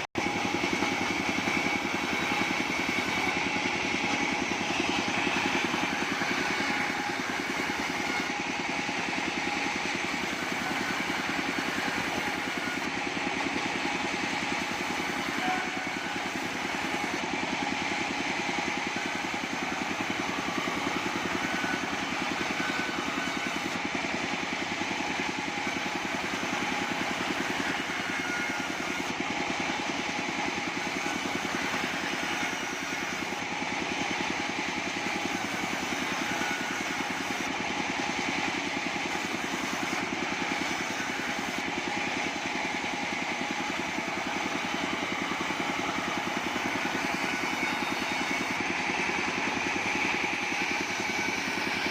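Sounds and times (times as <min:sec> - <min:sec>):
bandsaw sawmill running: 0:00.0 - 0:51.9.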